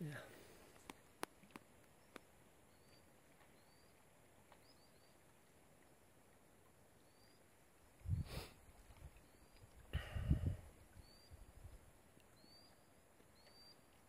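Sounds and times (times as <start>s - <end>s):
faint bird chirps: 2.0s - 5.2s, 7.0s - 7.5s, 9.1s - 9.9s, 10.9s - 11.7s, 12.3s - 14.0s.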